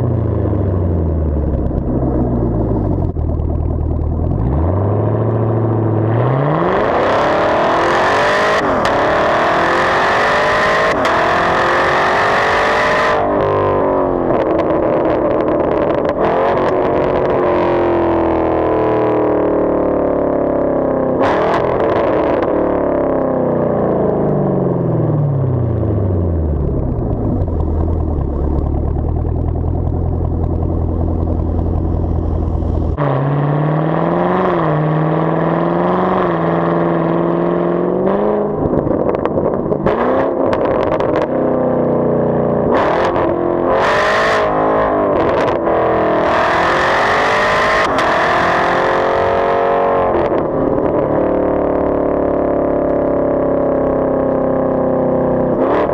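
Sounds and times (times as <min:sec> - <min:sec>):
car engine idling: 0:00.0 - 0:06.1, 0:25.6 - 0:33.0
exhaust cracks: 0:00.0 - 0:10.0, 0:25.6 - 0:33.2, 0:38.4 - 0:41.6, 0:47.5 - 0:49.3
engine revving: 0:00.0 - 0:19.4, 0:21.2 - 0:23.2, 0:24.8 - 0:39.1, 0:39.8 - 0:41.9, 0:42.6 - 0:52.6, 0:55.5 - 0:55.9.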